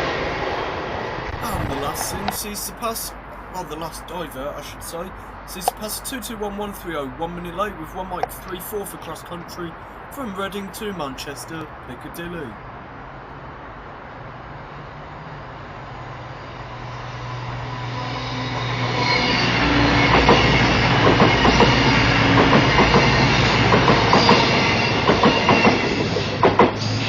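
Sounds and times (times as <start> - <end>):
diesel train passing at speed: 0.0 - 27.0
train wheels clicking over rail joints: 20.1 - 27.0.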